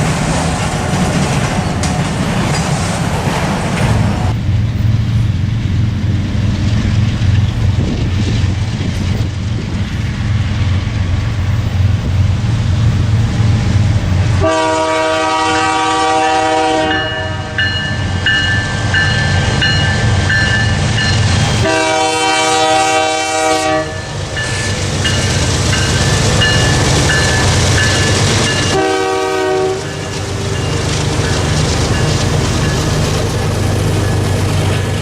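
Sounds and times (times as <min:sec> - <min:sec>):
passing train rumble: 0:00.0 - 0:35.0
locomotive air horn blasts: 0:14.3 - 0:17.7, 0:21.6 - 0:24.2, 0:28.5 - 0:30.1
bell ringing: 0:16.9 - 0:21.4, 0:24.4 - 0:28.8.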